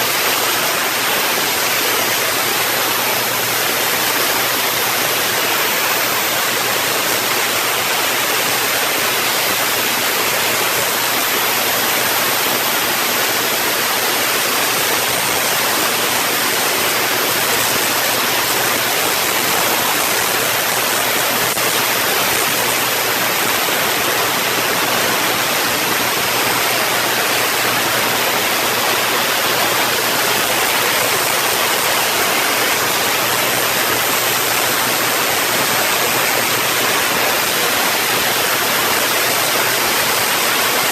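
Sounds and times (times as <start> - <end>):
rain-like hiss: 0.0 - 40.9.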